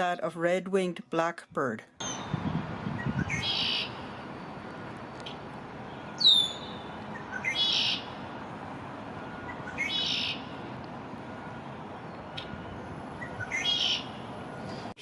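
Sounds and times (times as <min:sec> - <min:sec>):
harsh buzzy bird trill: 0:02.0 - 0:04.2, 0:05.3 - 0:08.2, 0:09.4 - 0:10.6, 0:12.1 - 0:14.3.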